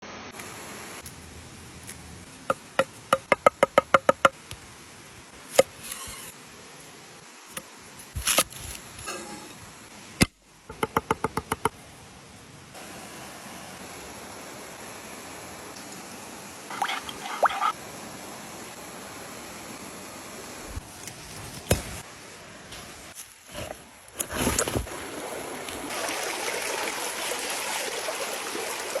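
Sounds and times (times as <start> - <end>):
knife scraping board: 5.7 - 6.3.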